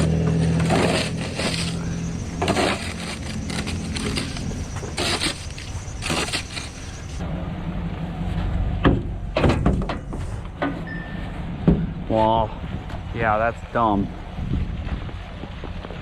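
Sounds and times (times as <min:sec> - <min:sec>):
knocks rattles and scrapes: 0:00.0 - 0:07.2, 0:08.8 - 0:10.9
pickup truck engine running: 0:00.0 - 0:07.2.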